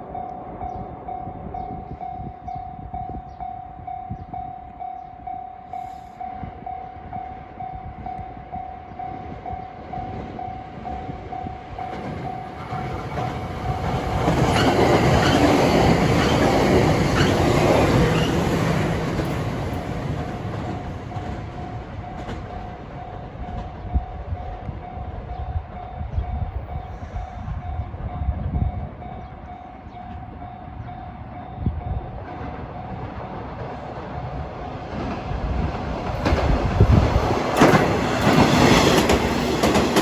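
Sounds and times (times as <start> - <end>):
level crossing warning bell: 0.0 - 26.8
electric train passing: 0.0 - 40.0.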